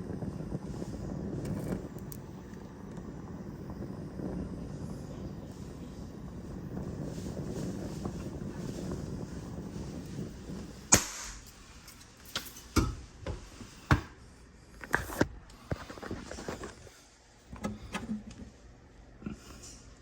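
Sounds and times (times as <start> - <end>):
rushing flame: 0.0 - 12.2
loud sharp pop: 10.9 - 11.5.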